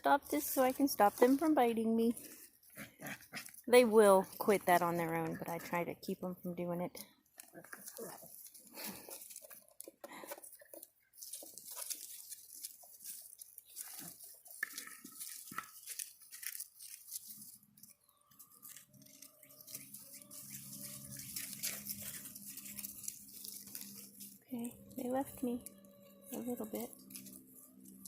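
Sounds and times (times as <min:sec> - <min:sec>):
puppies scuffling and chewing: 0:00.3 - 0:28.0
low steady drone: 0:19.8 - 0:28.0.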